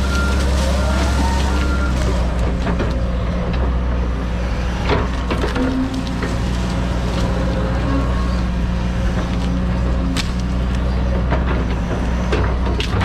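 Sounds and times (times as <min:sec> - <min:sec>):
excavator diesel engine running: 0:00.0 - 0:13.0
wood cracking and knocking: 0:09.2 - 0:13.0.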